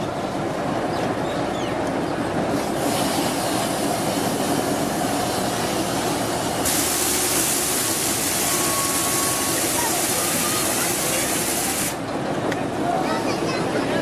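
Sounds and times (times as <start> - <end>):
train wheels rumbling on rails: 0.0 - 14.0
high hiss: 2.6 - 12.0.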